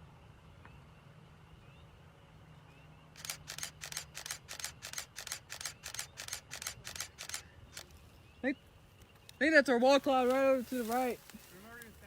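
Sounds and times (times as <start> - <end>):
camera shutter clicking: 3.2 - 8.0.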